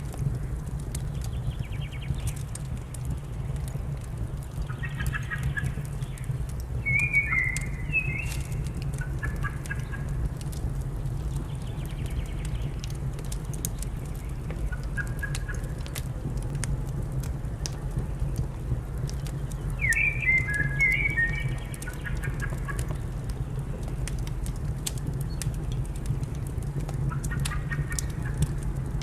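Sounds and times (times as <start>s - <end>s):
fire crackling and popping: 0.0s - 29.0s
low steady rumble: 0.0s - 29.0s
bird calling: 6.8s - 10.1s, 19.8s - 22.9s.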